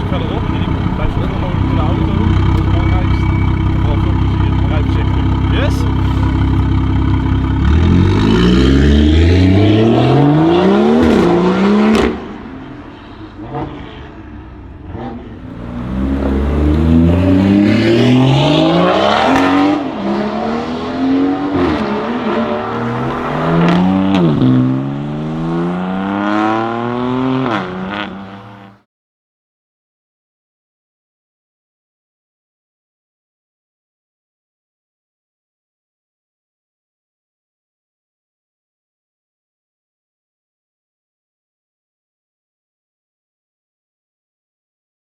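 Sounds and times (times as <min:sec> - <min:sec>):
exhaust cracks: 0:00.0 - 0:08.2, 0:15.3 - 0:19.6
car engine accelerating hard: 0:00.0 - 0:28.8.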